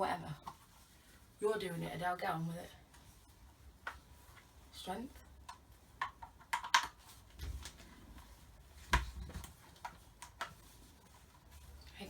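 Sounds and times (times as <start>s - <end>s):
plastic parts clicking and snapping: 5.5s - 7.8s.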